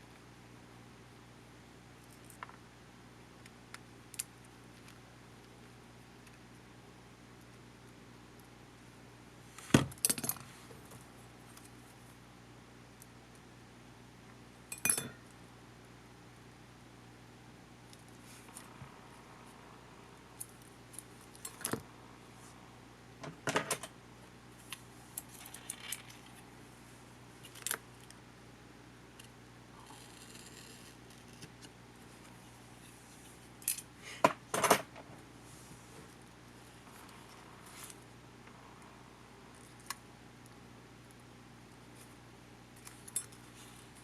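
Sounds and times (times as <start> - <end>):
small tools clicking and clattering: 14.7 - 15.2.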